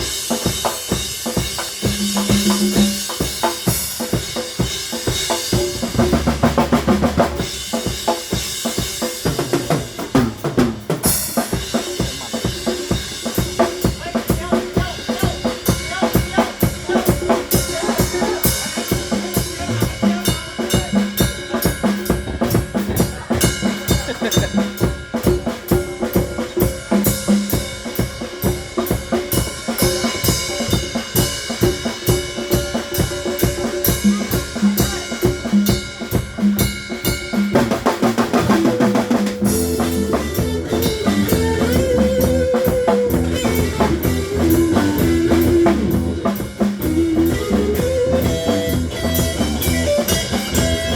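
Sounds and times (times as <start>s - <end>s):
drum kit beat: 0.0s - 50.9s
live band music: 0.0s - 50.9s
bass guitar: 5.7s - 7.4s, 38.3s - 50.9s.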